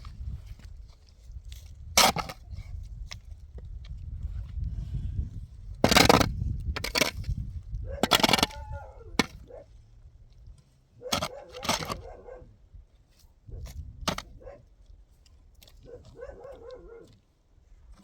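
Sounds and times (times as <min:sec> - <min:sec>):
dog barking: 0:07.9 - 0:09.7, 0:11.0 - 0:12.5, 0:14.3 - 0:14.7, 0:15.8 - 0:17.1.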